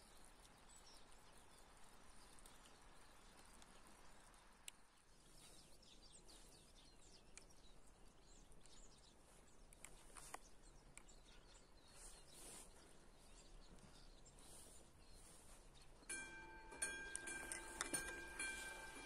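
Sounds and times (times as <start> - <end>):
faint bird chirps: 0.0 - 19.0
soft clicks: 8.6 - 11.7.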